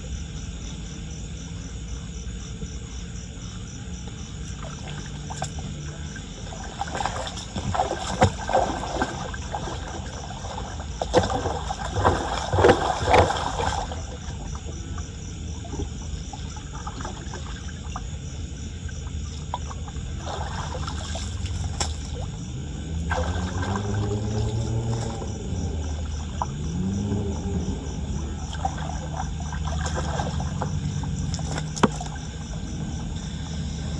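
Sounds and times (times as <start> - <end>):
flood water splashing and gurgling: 4.4 - 33.9
water trickling: 4.4 - 33.9
sharp splashes and knocks: 4.6 - 14.8, 19.4 - 22.4, 23.0 - 26.6, 28.3 - 32.8.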